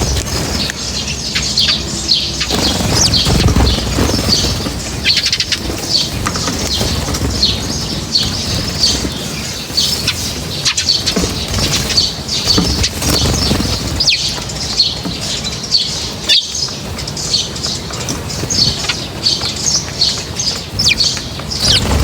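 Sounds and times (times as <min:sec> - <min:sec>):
low rumbling noise: 0:00.0 - 0:15.1
small birds chirping: 0:00.0 - 0:22.0
wings fluttering: 0:00.0 - 0:22.0.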